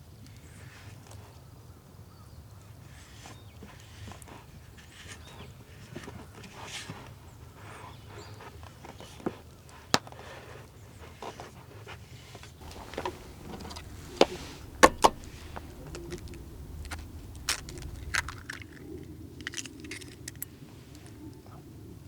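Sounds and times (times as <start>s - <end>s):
low steady rumble: 12.6s - 20.4s
small hard objects clinking: 12.6s - 20.5s.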